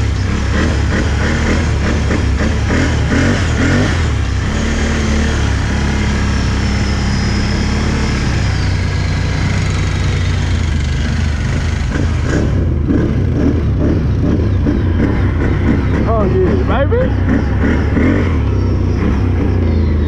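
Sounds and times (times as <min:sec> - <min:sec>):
engine rumbling steadily: 0:00.0 - 0:20.0.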